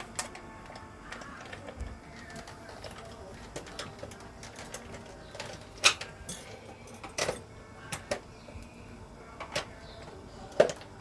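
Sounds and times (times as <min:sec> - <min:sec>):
utensils and dishes clicking: 0:00.0 - 0:11.0.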